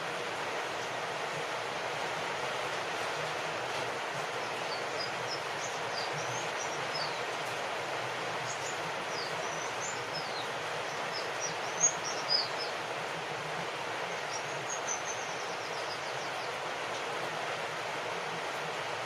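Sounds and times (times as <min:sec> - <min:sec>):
steady rain: 0:00.0 - 0:19.0
birds chirping: 0:04.2 - 0:13.0, 0:13.7 - 0:16.9.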